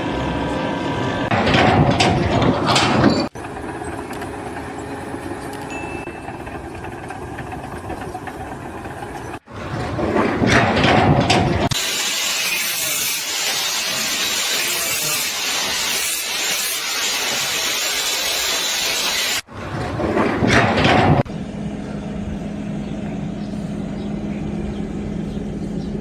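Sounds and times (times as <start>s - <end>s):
low machinery rumble: 0.0s - 12.0s, 19.4s - 26.0s
machinery clatter: 0.0s - 21.4s
loud steady hiss: 11.8s - 19.4s.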